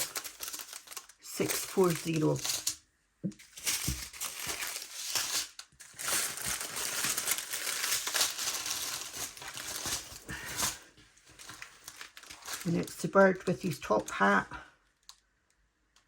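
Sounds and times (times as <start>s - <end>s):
packaging crinkling: 0.0s - 2.8s, 3.4s - 13.0s.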